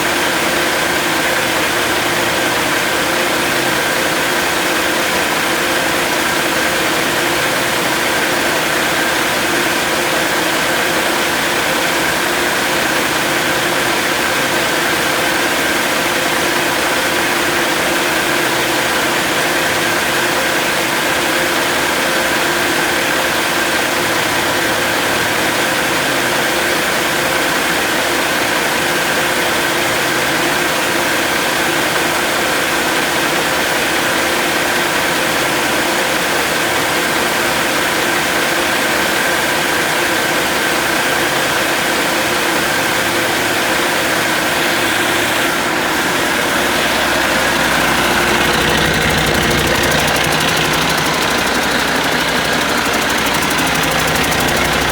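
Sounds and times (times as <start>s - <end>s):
diesel engine running: 45.5s - 54.9s.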